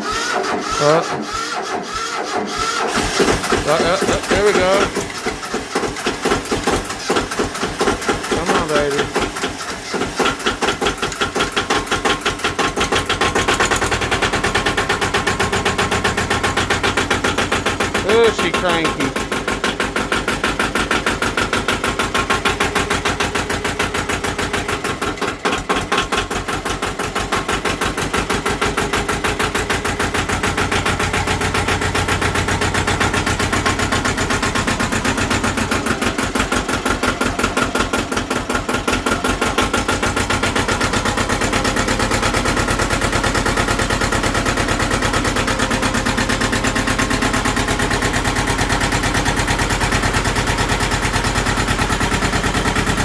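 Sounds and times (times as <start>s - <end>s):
diesel tractor engine clattering: 0.0s - 53.0s.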